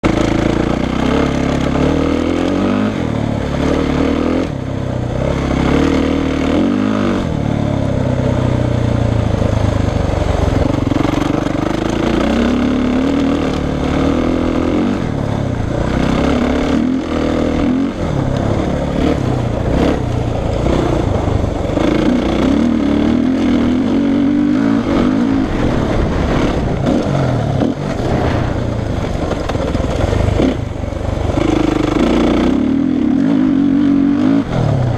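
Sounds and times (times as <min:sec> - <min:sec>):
motocross bike engine revving: 0:00.0 - 0:34.9.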